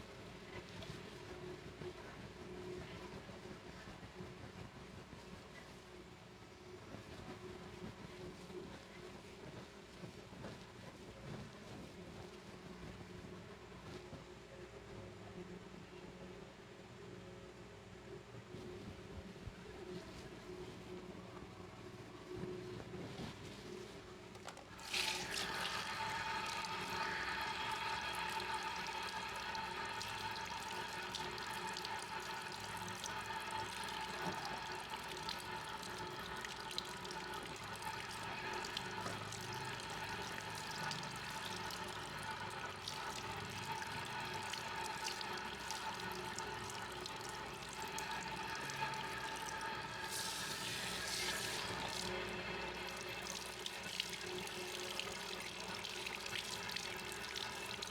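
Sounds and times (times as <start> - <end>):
water running from a tap: 24.8 - 57.9.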